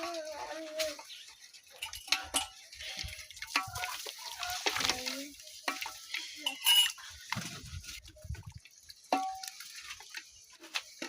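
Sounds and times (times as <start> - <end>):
metal pots and utensils clinking: 0.0 - 11.0
metal pan ringing: 1.8 - 2.7, 5.7 - 7.0, 9.1 - 9.6.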